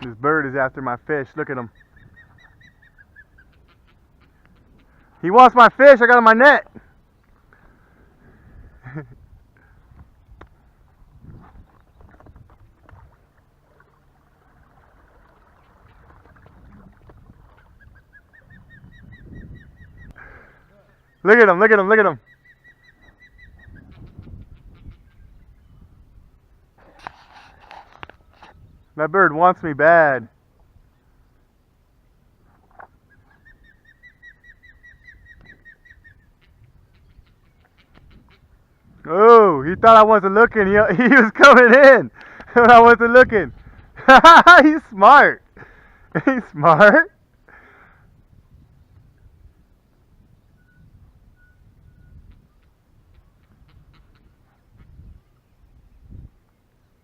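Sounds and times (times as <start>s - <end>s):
faint bird chirping: 1.6s - 5.2s, 17.4s - 21.5s, 22.1s - 26.5s, 32.9s - 39.0s, 49.9s - 57.0s.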